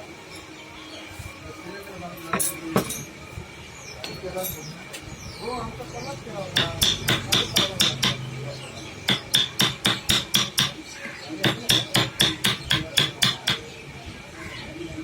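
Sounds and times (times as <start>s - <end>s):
hammer tapping with metallic ring: 6.5s - 8.3s, 9.1s - 10.8s, 11.4s - 13.6s.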